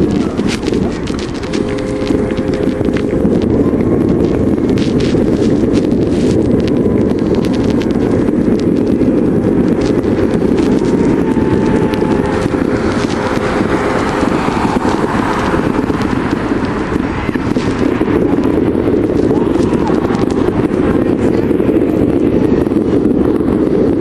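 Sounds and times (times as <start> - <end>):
fireworks popping and crackling: 0.0 - 24.0
wind rumbling on microphone: 0.0 - 24.0.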